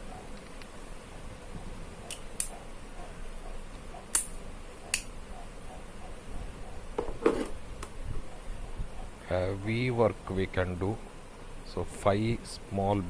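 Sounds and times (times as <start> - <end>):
faint room hiss: 0.0 - 13.0
sharp short clicks: 4.1 - 5.2.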